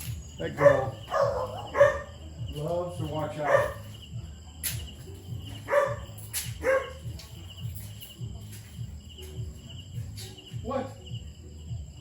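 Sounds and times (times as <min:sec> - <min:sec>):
dog barking: 0:00.4 - 0:02.3, 0:03.3 - 0:04.0, 0:05.6 - 0:07.1.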